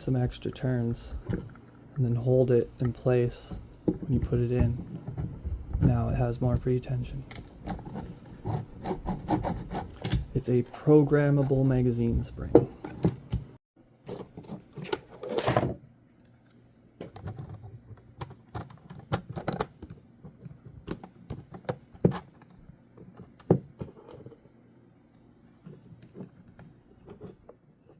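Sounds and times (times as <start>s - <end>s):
plastic parts clicking and rattling: 17.0s - 24.4s.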